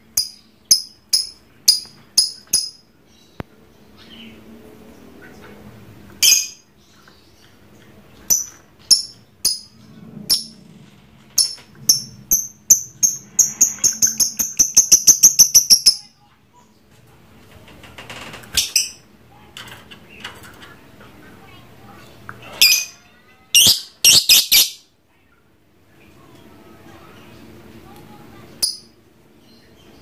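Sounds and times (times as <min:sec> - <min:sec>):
lovebird shrill high chirps: 0:23.6 - 0:24.8.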